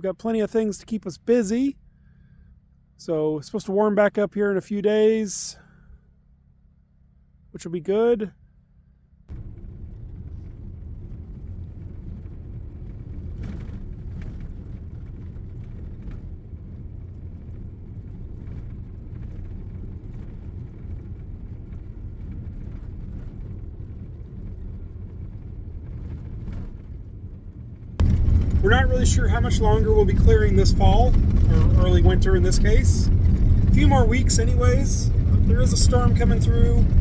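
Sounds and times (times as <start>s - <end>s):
vehicle engine rumble: 8.6s - 37.0s
road noise: 23.3s - 37.0s.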